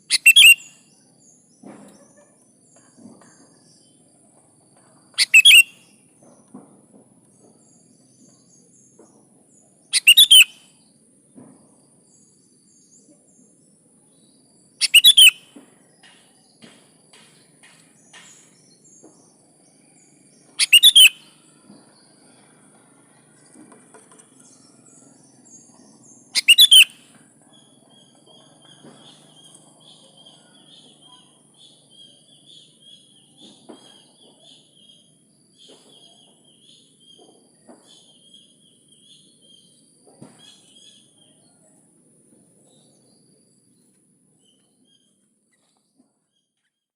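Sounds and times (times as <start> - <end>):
bird twittering: 0.0 - 0.8, 5.2 - 5.9, 9.8 - 10.6, 14.8 - 15.5, 20.5 - 21.4, 26.2 - 37.2.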